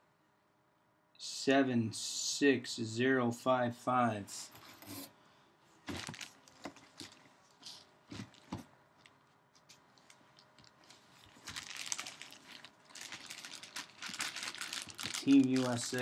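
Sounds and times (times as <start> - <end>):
plastic packaging crinkling: 5.8 - 16.0.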